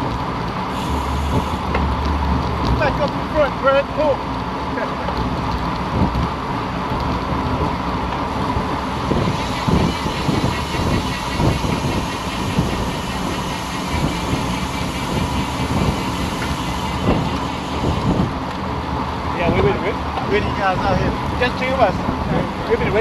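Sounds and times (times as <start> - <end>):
tyres rumbling on road: 0.0 - 23.0
wind rushing over microphone: 5.7 - 23.0.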